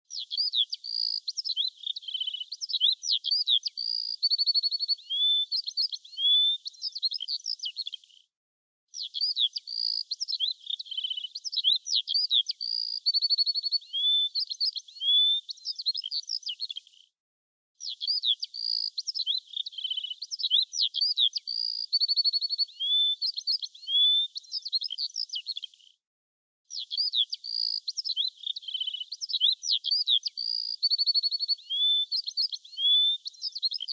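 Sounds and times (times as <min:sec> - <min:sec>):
recorded bird song: 0:00.0 - 0:08.3, 0:08.9 - 0:17.2, 0:17.8 - 0:26.0, 0:26.6 - 0:33.9.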